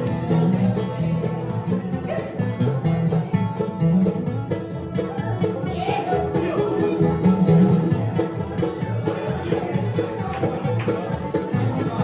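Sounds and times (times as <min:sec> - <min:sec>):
banjo: 0:00.0 - 0:12.0
bass beat: 0:00.0 - 0:12.0
bluegrass band playing: 0:00.0 - 0:12.0.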